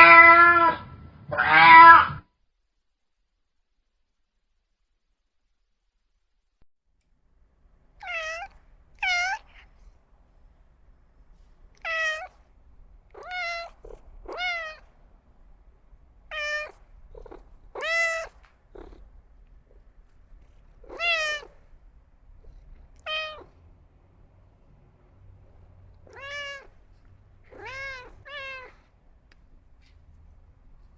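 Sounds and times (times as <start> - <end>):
cat meowing: 0.0 - 2.2, 8.0 - 9.9, 11.7 - 12.5, 13.1 - 15.0, 16.3 - 19.1, 20.5 - 21.7, 22.7 - 23.6, 26.0 - 26.8, 27.4 - 28.9.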